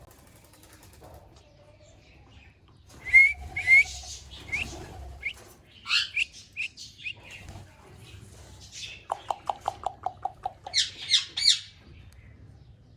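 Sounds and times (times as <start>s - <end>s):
parrot whistled chirps: 3.0s - 6.7s.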